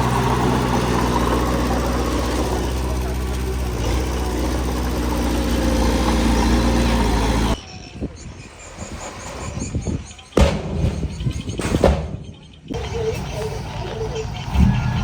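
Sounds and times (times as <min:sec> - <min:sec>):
diesel engine running: 0:00.0 - 0:07.6, 0:12.7 - 0:15.0
loud thump: 0:10.4 - 0:12.3.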